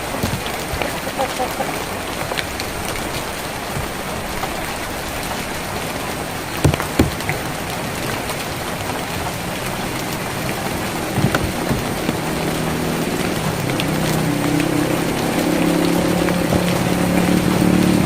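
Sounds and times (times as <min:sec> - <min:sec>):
rain on a tin roof: 0:00.0 - 0:18.0
drop knocks: 0:06.6 - 0:07.4, 0:11.2 - 0:12.2.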